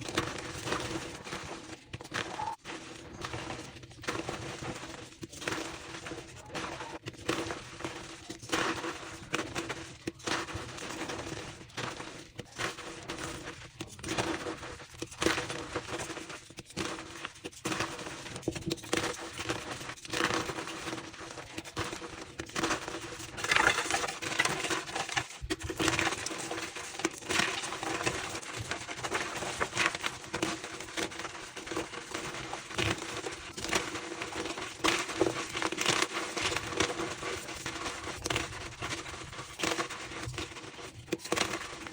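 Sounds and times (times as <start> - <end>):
chalk blocks crunching: 11.6 - 41.9.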